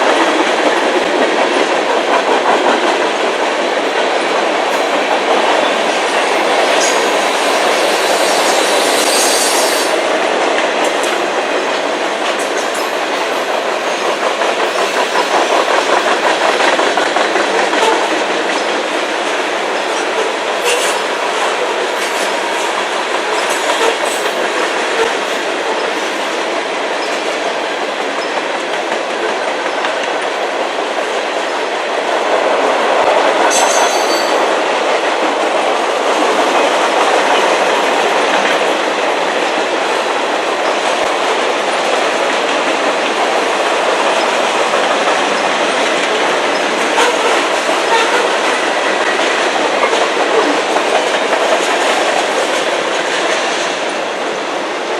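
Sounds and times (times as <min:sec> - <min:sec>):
high metallic screech: 0:08.0 - 0:09.9
wheels clicking over rail joints: 0:09.8 - 0:31.5.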